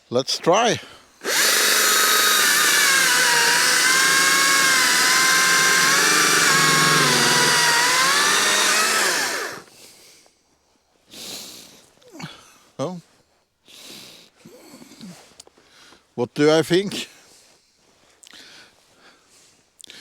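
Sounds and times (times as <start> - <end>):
chainsaw running at full throttle: 1.2 - 9.7.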